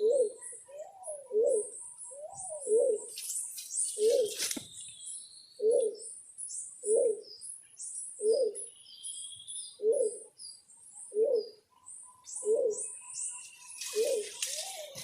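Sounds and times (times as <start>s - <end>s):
dove cooing: 0.0s - 3.2s, 4.0s - 4.4s, 5.6s - 6.1s, 6.8s - 7.3s, 8.2s - 8.7s, 9.8s - 10.3s, 11.1s - 11.6s, 12.3s - 13.1s, 13.7s - 15.0s
small birds chirping: 0.0s - 15.0s.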